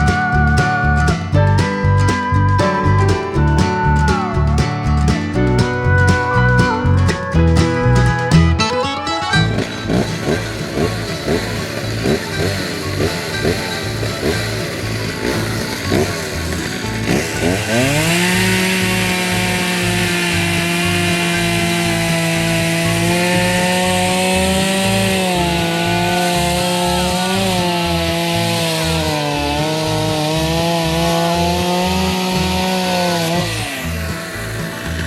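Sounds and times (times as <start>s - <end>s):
power saw cutting wood: 9.1s - 35.0s.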